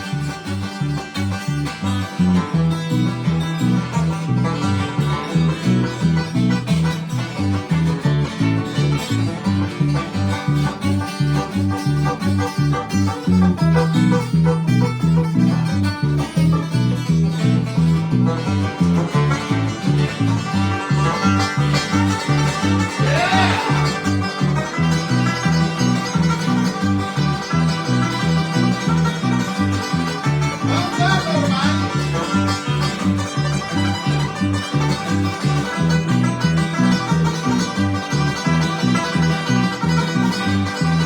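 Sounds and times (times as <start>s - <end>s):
acoustic guitar bass rhythm: 0.0s - 41.0s
banjo playing: 0.0s - 41.0s.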